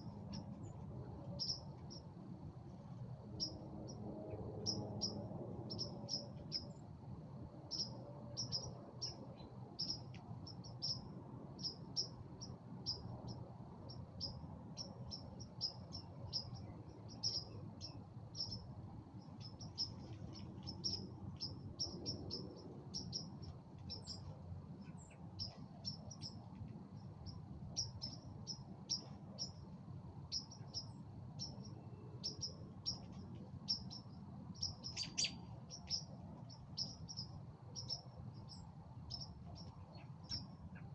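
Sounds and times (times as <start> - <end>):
birds chirping: 30.3 - 40.9.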